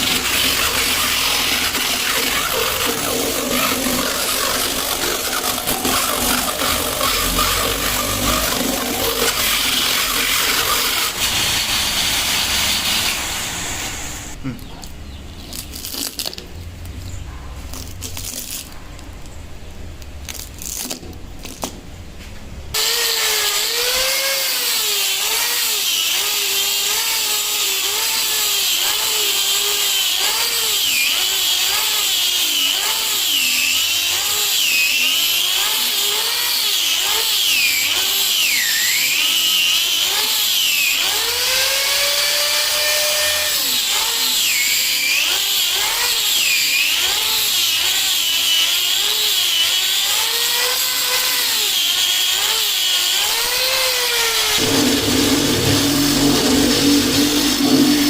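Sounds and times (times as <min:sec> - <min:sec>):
power tool running: 0:00.0 - 0:14.5, 0:22.7 - 0:58.0
low rumble: 0:54.6 - 0:58.0.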